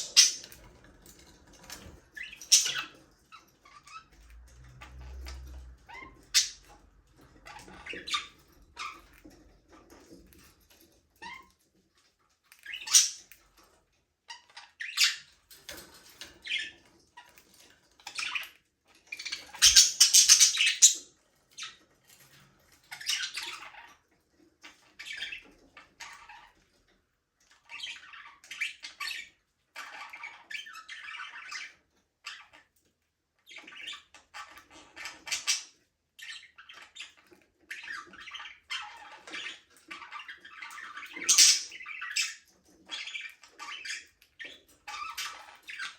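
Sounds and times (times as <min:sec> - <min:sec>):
budgerigars chirping: 0:00.0 - 0:00.7, 0:01.6 - 0:03.0, 0:05.2 - 0:06.7, 0:07.4 - 0:09.1, 0:12.6 - 0:13.3, 0:14.5 - 0:15.3, 0:19.1 - 0:21.8, 0:33.5 - 0:45.9.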